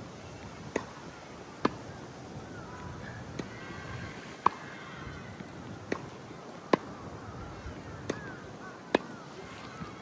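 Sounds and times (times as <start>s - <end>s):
tennis balls struck by rackets: 0.6s - 1.9s, 3.0s - 4.8s, 5.4s - 10.0s.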